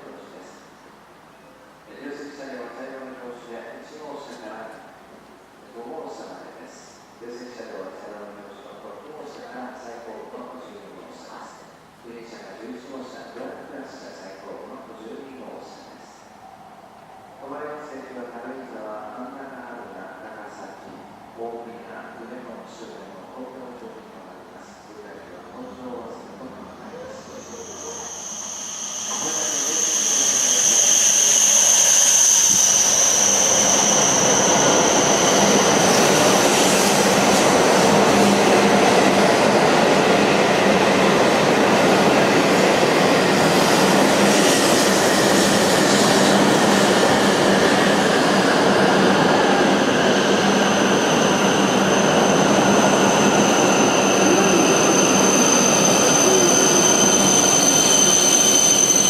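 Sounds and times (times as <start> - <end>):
high steady squeal: 26.8 - 37.9, 49.4 - 59.0
train wheels rushing: 27.0 - 59.0.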